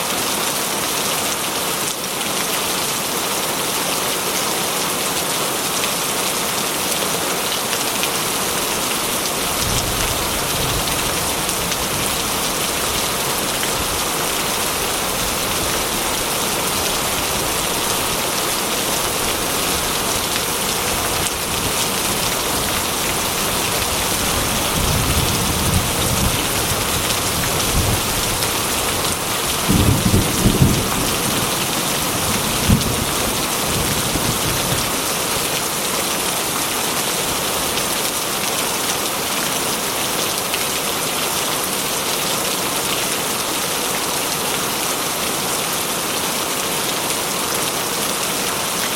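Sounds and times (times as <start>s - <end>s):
rain on a metal roof: 0.0s - 48.9s
thunder rumbles: 24.4s - 34.9s.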